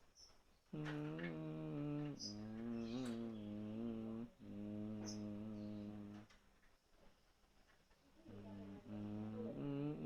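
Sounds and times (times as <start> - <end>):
faint ticks: 0.2 - 3.4, 4.9 - 8.1
man humming low note: 0.7 - 6.3, 8.3 - 10.0.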